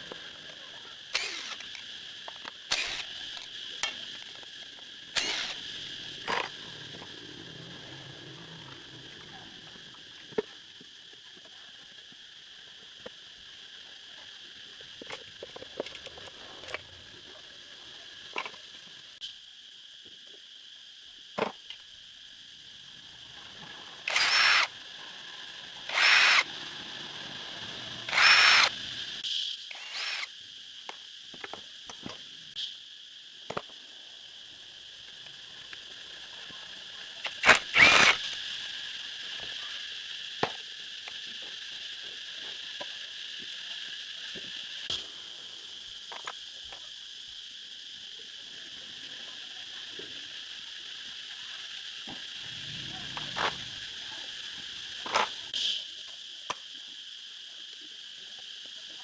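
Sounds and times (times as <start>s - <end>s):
high insect drone: 0.0s - 59.0s
short noisy bursts: 29.7s - 30.3s.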